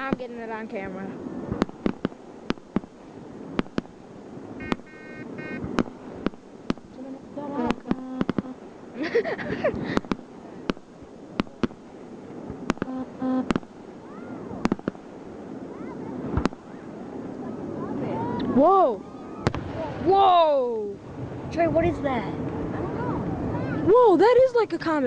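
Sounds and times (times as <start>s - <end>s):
distant fireworks bangs: 0.0s - 17.6s, 19.2s - 20.3s.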